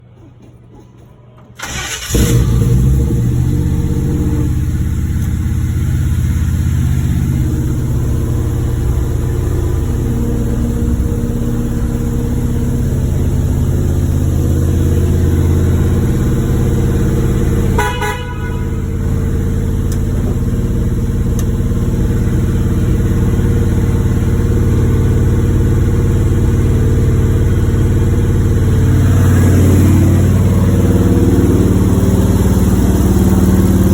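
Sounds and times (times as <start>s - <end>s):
car engine cold-starting: 1.6s - 17.8s, 18.8s - 33.9s
short horn toot: 17.6s - 19.3s.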